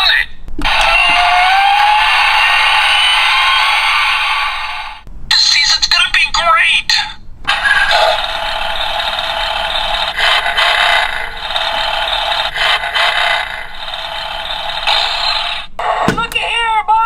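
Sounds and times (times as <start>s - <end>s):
toy car engine sound effect: 7.5s - 15.7s.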